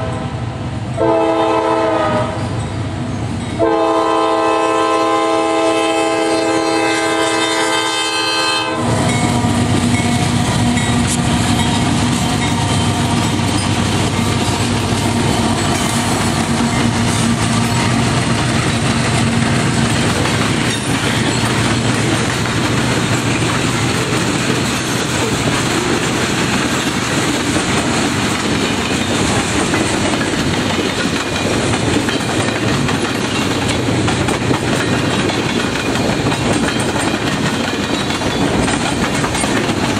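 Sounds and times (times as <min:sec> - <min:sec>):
locomotive horn chord: 0:01.0 - 0:02.4, 0:03.6 - 0:09.0
locomotive engine: 0:08.7 - 0:39.9
freight car wheels clacking on rails: 0:09.0 - 0:39.9.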